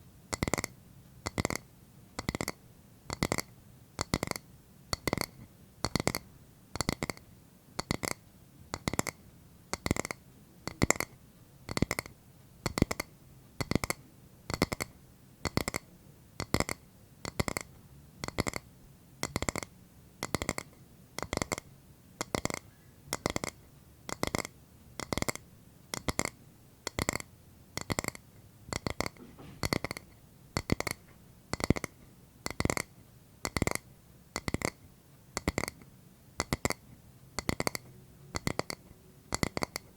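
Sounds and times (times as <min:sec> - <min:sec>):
tapping on a hard object: 0:05.0 - 0:06.2, 0:07.8 - 0:11.1, 0:11.7 - 0:13.0, 0:13.6 - 0:15.8, 0:19.2 - 0:21.6, 0:22.2 - 0:26.3, 0:27.8 - 0:31.9, 0:35.4 - 0:35.8, 0:37.4 - 0:39.9.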